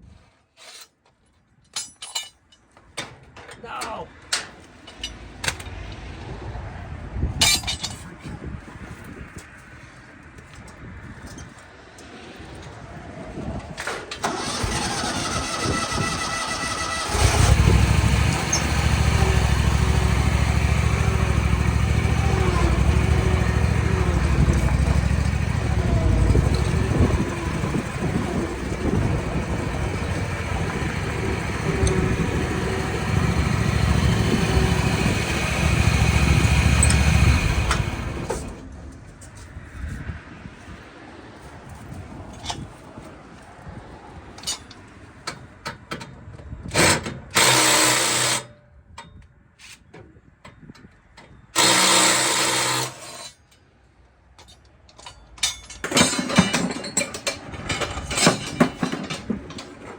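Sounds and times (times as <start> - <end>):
engine starting and running: 13.8 - 38.8, 46.7 - 48.5, 51.5 - 53.3, 55.8 - 59.9.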